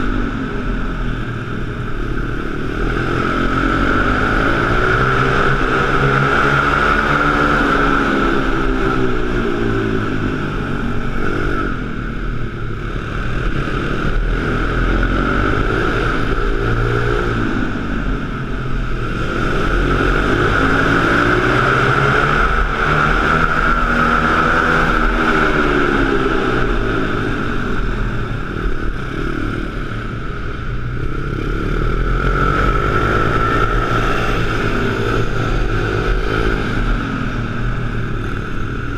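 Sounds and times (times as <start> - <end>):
pit bike engine revving: 12.9 - 38.9.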